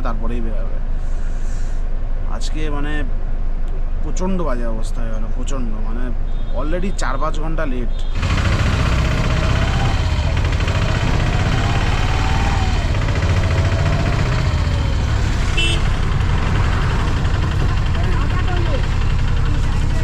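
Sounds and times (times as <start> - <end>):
vehicle engine running: 8.1 - 20.0.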